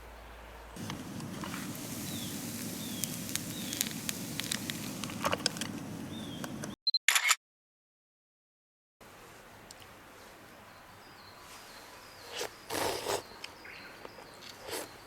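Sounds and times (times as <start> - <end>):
low rush of burning wood: 0.3 - 6.7
campfire crackling and popping: 0.8 - 6.8.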